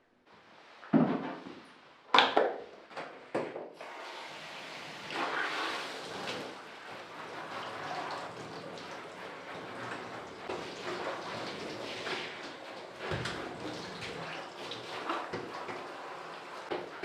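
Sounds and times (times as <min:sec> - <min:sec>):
water running: 0:03.8 - 0:17.0.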